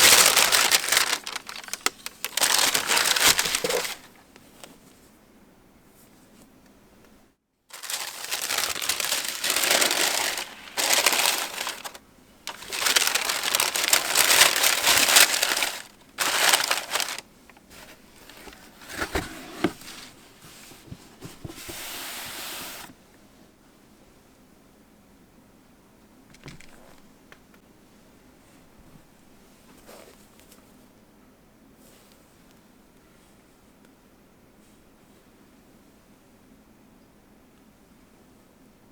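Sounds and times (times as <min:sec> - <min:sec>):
paper crumpling and crinkling: 0:00.0 - 0:04.8, 0:07.7 - 0:22.9.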